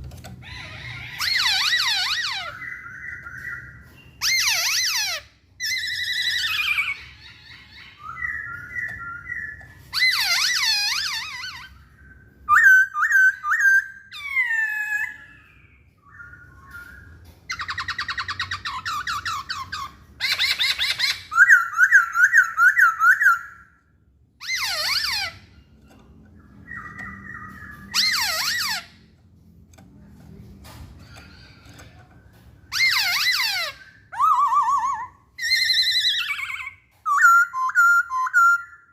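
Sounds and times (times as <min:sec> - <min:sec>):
bird singing whistled phrases: 0:32.7 - 0:38.9.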